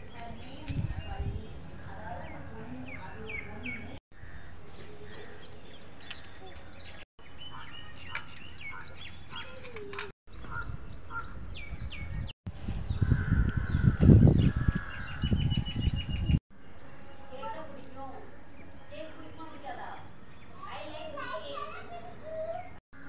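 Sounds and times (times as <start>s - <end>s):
small birds chirping: 0.0s - 23.0s
low rumble on microphone: 10.4s - 16.4s.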